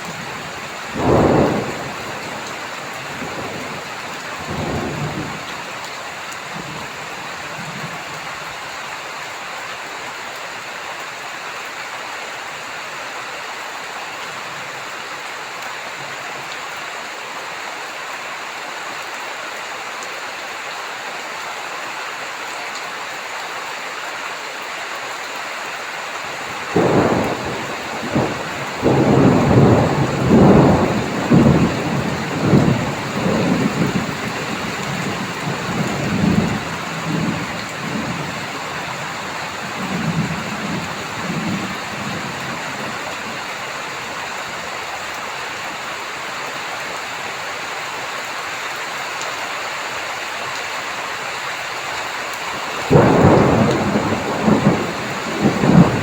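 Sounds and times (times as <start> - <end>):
heavy rain falling: 0.0 - 56.0
thunder rumbling: 0.1 - 5.7, 26.5 - 44.2, 52.8 - 56.0.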